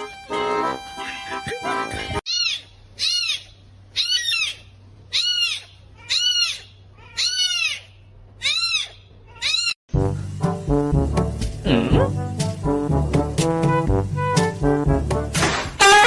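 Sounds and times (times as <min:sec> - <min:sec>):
pet animal high calls: 0:02.3 - 0:09.8.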